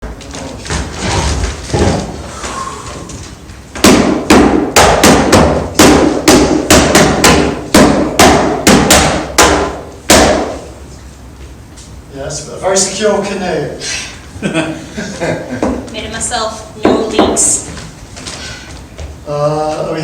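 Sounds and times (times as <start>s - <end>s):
hard knocks on wood: 3.8s - 10.6s, 16.8s - 17.6s.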